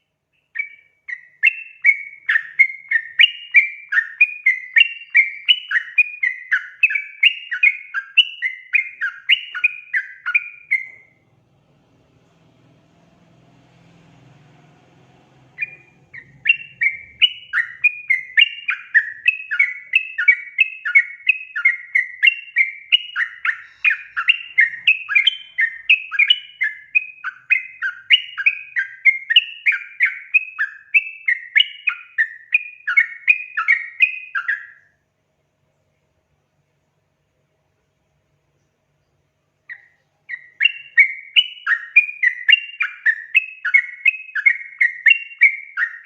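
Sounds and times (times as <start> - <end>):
bird singing chattering phrases: 15.5 - 20.6, 22.9 - 26.6.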